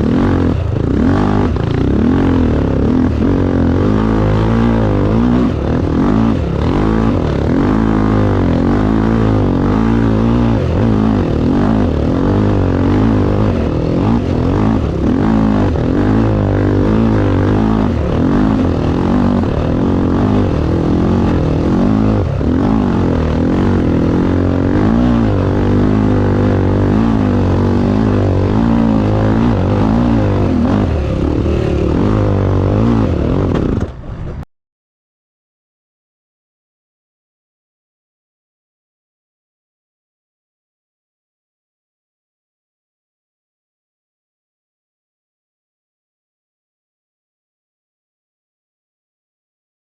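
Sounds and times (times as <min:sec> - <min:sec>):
racing engine revving: 0:00.0 - 0:34.4.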